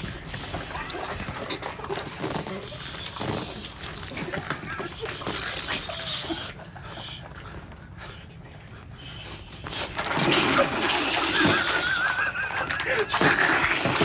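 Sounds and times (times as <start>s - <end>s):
people stifling high squeals: 9.9s - 14.0s.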